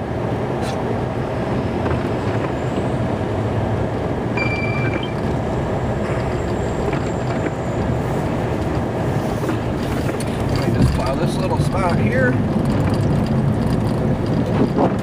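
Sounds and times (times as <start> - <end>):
truck engine running: 0.0 - 15.0
brief high tone: 4.4 - 5.2.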